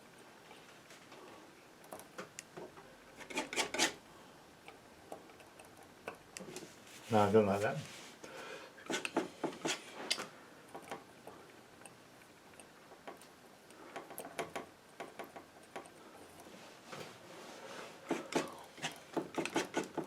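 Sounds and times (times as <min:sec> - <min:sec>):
painting knife scraping and tapping: 0:02.3 - 0:04.0, 0:08.8 - 0:10.2, 0:18.0 - 0:20.0.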